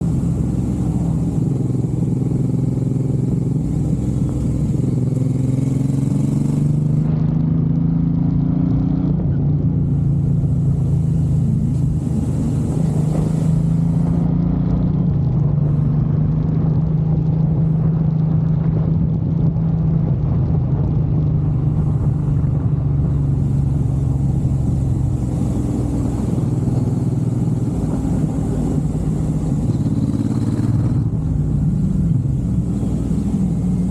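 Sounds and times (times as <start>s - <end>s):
motorcycle engine running: 0.0s - 33.9s
high hiss: 10.6s - 14.2s.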